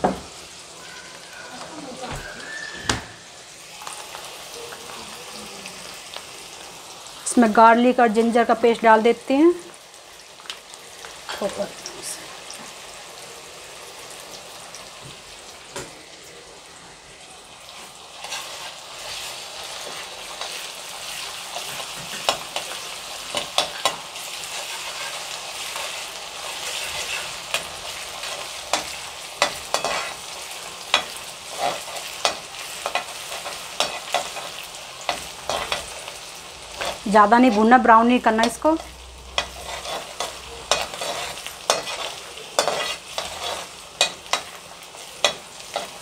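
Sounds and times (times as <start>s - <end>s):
onions sizzling in hot oil: 0.0s - 46.0s
spatula scraping and clinking pan: 21.5s - 30.3s, 30.9s - 35.9s, 38.4s - 44.6s.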